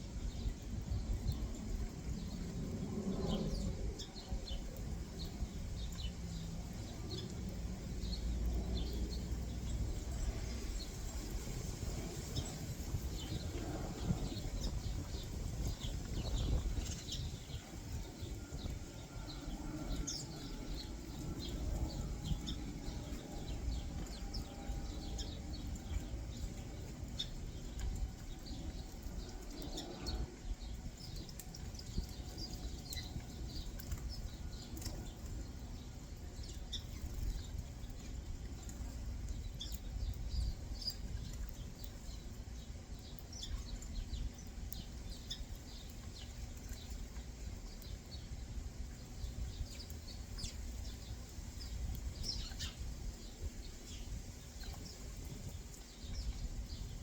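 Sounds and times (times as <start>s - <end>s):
small birds chirping: 0.0s - 57.0s
steady low rumble: 0.0s - 57.0s.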